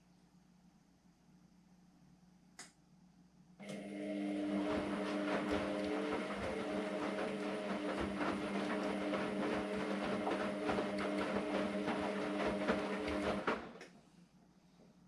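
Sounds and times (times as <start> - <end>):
washing machine motor hum: 3.6 - 13.9
towels tumbling in drum: 4.9 - 13.8.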